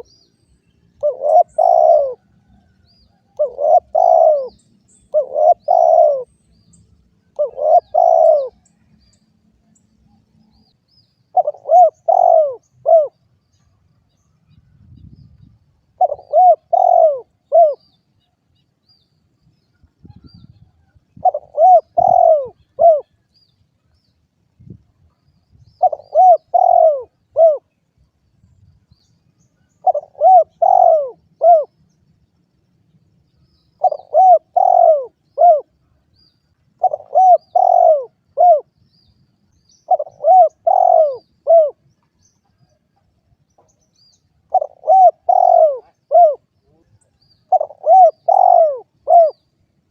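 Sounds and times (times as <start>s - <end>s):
dove cooing: 1.0s - 6.3s, 7.3s - 8.6s, 11.3s - 13.2s, 15.9s - 17.8s, 20.2s - 23.2s, 25.8s - 27.8s, 29.6s - 31.8s, 33.8s - 35.8s, 36.8s - 38.8s, 39.8s - 41.8s, 44.4s - 49.4s.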